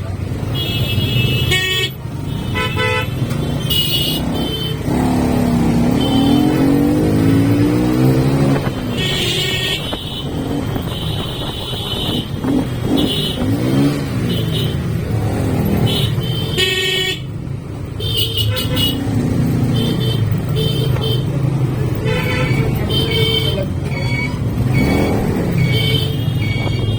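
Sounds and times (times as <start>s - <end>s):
vehicle horns honking: 0.3s - 14.9s, 15.7s - 17.4s, 18.0s - 21.4s, 22.0s - 26.9s
motorcycle engine running: 3.3s - 26.9s.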